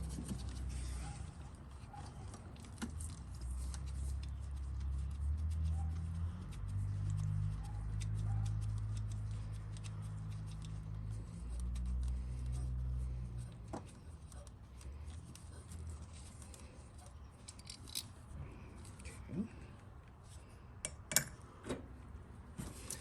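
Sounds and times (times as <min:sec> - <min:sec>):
tools and plastic parts clicking: 0:17.4 - 0:18.2.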